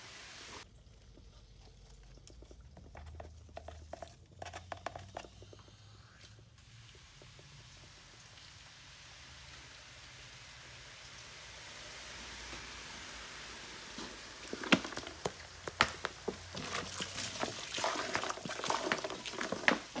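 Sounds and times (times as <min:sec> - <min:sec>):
faint hiss: 0:00.0 - 0:00.6, 0:05.4 - 0:16.5.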